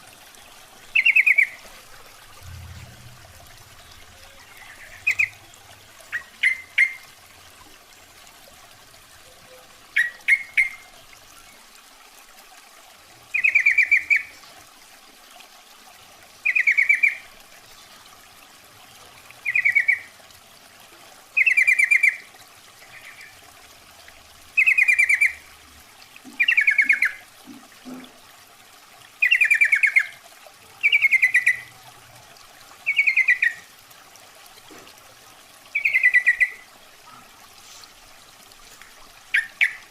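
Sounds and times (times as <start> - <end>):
bulbul warbling calls: 0.8 - 1.7, 2.4 - 5.5, 6.1 - 7.1, 9.2 - 10.9, 13.3 - 14.4, 16.4 - 17.3, 19.4 - 20.1, 21.4 - 22.3, 24.6 - 25.5, 26.4 - 27.2, 29.2 - 30.2, 30.8 - 31.7, 32.8 - 33.7, 35.7 - 37.9, 39.3 - 39.9.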